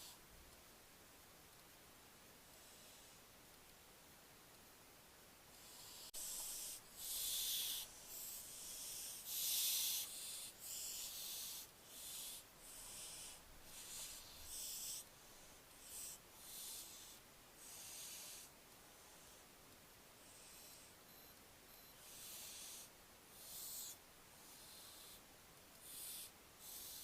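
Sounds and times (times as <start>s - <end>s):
owlet hissing begging calls: 6.1s - 15.1s.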